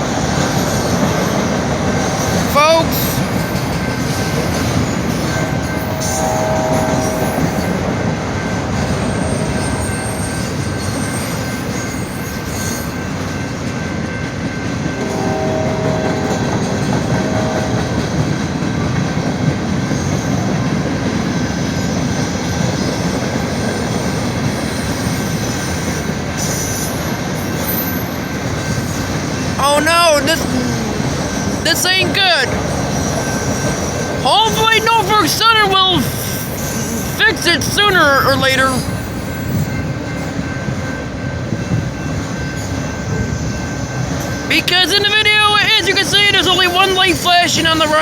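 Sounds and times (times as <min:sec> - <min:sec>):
train cars rolling on rails: 0:00.0 - 0:48.0
wheel squeals: 0:08.4 - 0:13.4.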